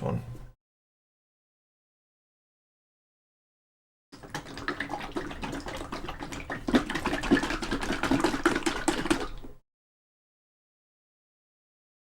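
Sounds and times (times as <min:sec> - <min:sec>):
water splashing and trickling: 0:04.2 - 0:09.6.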